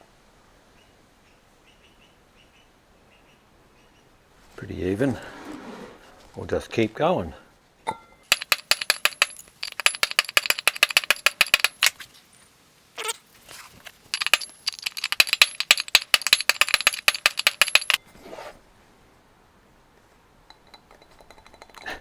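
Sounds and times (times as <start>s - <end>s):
hammer tapping metal punch: 8.3s - 11.9s, 14.2s - 18.0s.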